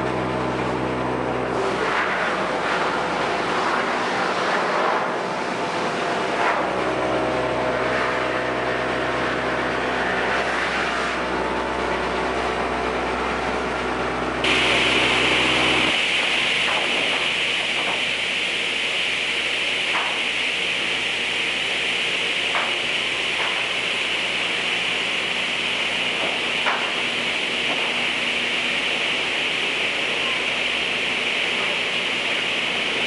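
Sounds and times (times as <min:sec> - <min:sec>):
engine drone: 0:00.0 - 0:33.0
steady high hiss: 0:14.5 - 0:24.7.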